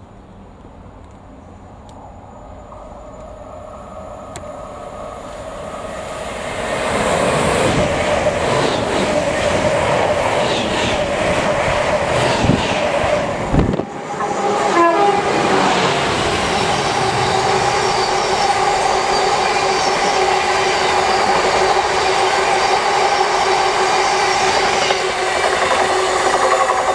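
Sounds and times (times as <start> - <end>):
electric train passing: 0.0 - 26.9
train wheels clattering on rails: 15.5 - 26.9.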